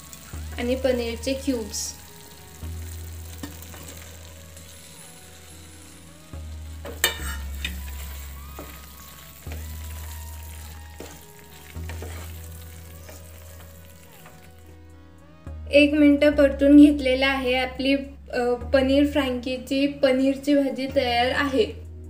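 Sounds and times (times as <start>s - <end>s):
food frying in a pan: 0.0s - 14.8s
wooden spatula stirring and scraping: 6.8s - 14.7s.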